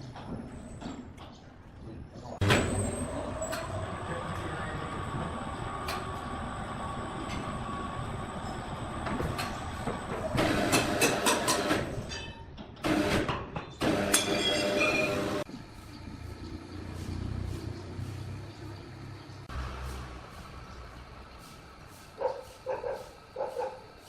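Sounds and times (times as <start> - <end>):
sawmill machinery clattering: 2.4 - 15.5.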